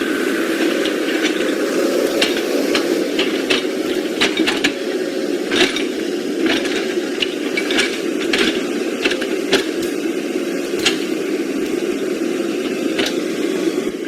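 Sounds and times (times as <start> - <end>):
clicks and rattles: 5.5 - 10.0, 10.7 - 11.8.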